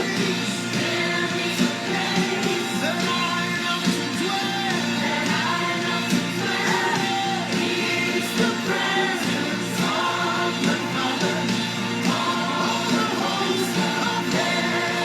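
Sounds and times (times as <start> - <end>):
worship music with singing: 0.0 - 15.0.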